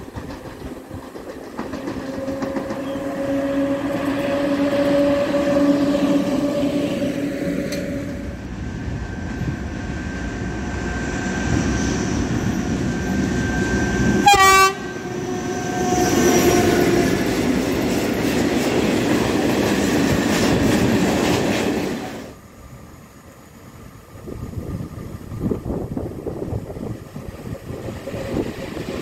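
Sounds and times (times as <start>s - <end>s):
train wagon wheel noise: 0.0s - 22.4s, 24.0s - 29.0s
diesel locomotive: 0.0s - 29.0s
train horn blast: 2.1s - 8.4s, 14.2s - 17.2s.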